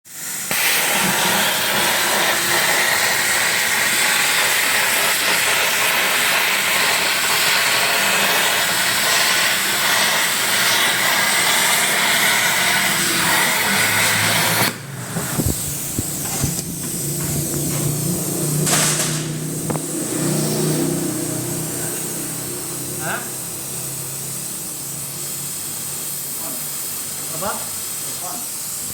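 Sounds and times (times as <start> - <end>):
welding arc hissing: 0.1 - 28.9
machine hum: 13.0 - 25.2.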